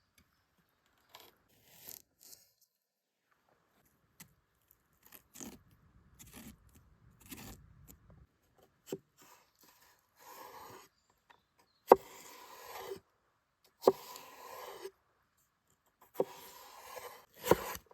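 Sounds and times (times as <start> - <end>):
faint handling scrapes and clicks: 0.8 - 11.5.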